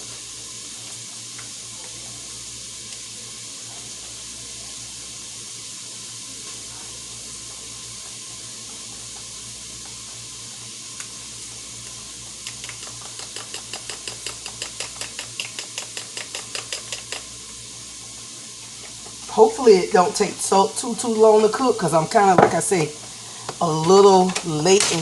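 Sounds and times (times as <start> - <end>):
onions sizzling: 0.0 - 25.0
spoon clicking against bowl: 12.4 - 17.3.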